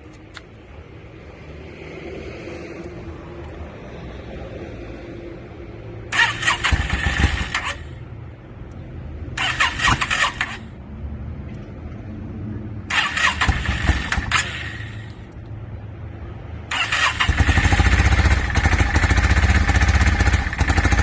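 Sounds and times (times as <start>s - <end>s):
motorcycle electric starter cranking: 6.2s - 7.9s, 9.4s - 10.6s, 12.9s - 15.2s, 16.7s - 21.0s.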